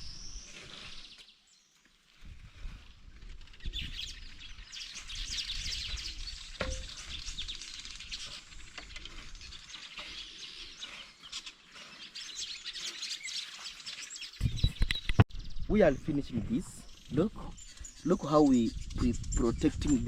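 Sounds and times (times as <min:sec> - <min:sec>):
small birds chirping: 0:03.4 - 0:20.0.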